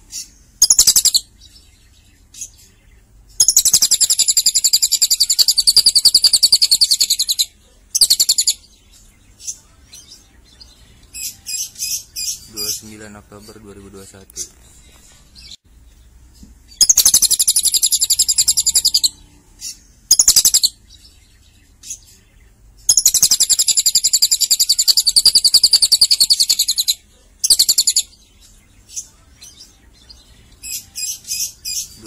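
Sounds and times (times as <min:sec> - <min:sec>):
bird choppy chirps: 0:00.1 - 0:01.3, 0:03.4 - 0:08.6, 0:16.7 - 0:20.8, 0:22.9 - 0:28.2
lovebird high-pitched trills: 0:03.4 - 0:08.7, 0:16.7 - 0:21.2, 0:22.8 - 0:28.2.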